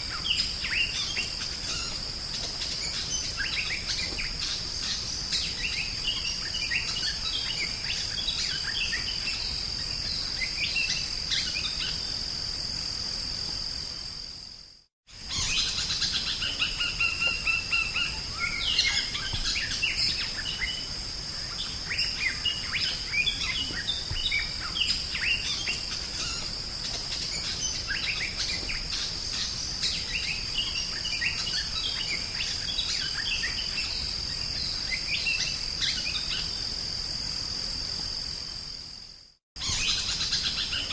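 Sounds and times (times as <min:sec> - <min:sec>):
bird chirping and whistling: 0:39.6 - 0:40.9.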